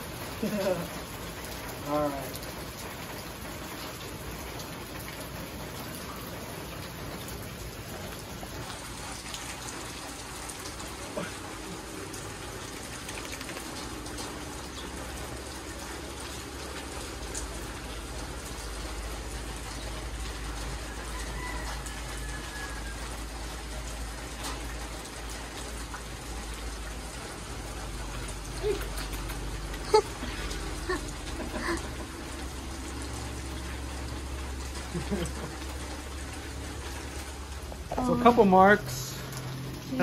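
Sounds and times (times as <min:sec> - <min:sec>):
rain pattering: 0:00.0 - 0:40.0.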